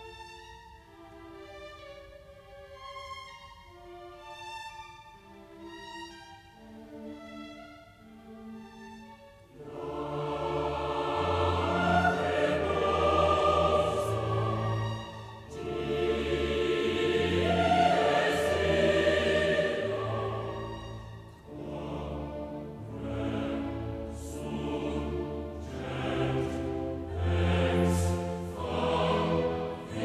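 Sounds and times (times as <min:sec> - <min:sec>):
massed voices singing: 0:09.6 - 0:30.0.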